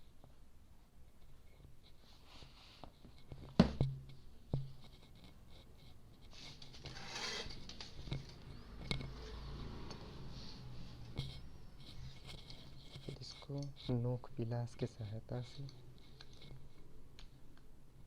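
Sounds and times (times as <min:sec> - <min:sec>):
scraping rustle: 0:04.8 - 0:08.4.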